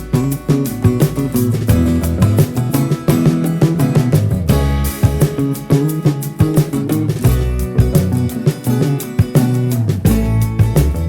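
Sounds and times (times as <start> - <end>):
strummed acoustic guitar music: 0.0 - 11.0.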